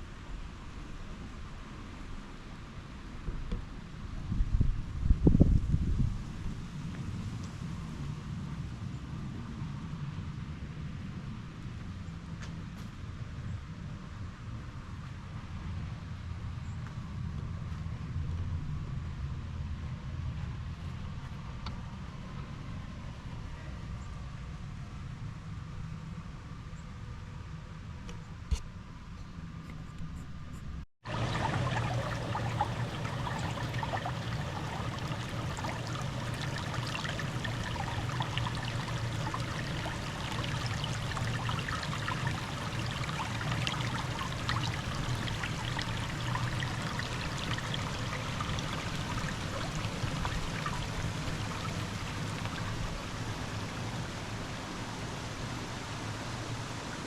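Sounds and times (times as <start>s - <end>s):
water trickling and splashing: 31.0s - 57.0s.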